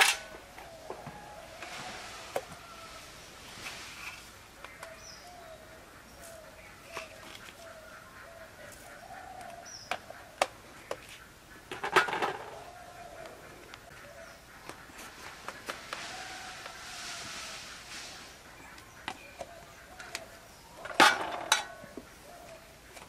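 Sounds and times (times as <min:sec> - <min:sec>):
bird calling: 0:03.7 - 0:23.0
bowls and utensils clattering: 0:20.8 - 0:21.8.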